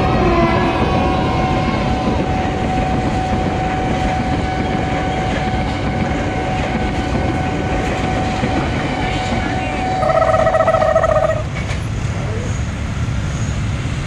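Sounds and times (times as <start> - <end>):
train wheels rumbling on rail: 0.0 - 14.0
thin high tone: 10.0 - 11.4.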